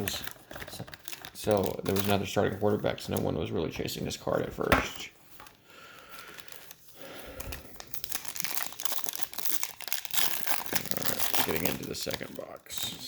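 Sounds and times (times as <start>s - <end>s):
packaging crinkling: 0.0s - 3.5s, 4.6s - 13.0s.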